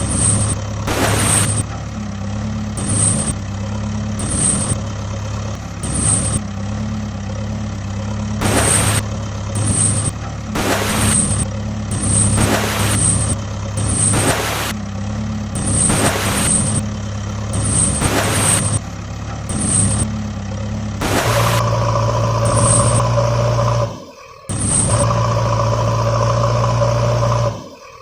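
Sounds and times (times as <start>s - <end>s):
hissing surges: 0.0s - 1.6s, 8.4s - 14.8s, 15.6s - 16.8s, 17.6s - 18.8s, 21.0s - 28.0s
heavy vehicle engine running: 0.0s - 28.0s.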